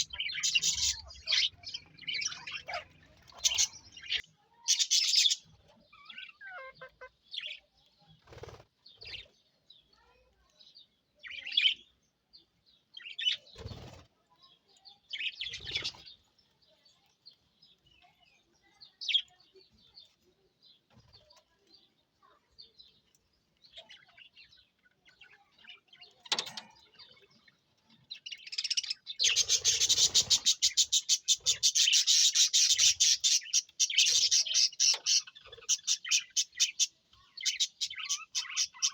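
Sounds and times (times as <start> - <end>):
budgerigars chirping: 0.0 - 7.7, 28.3 - 38.9.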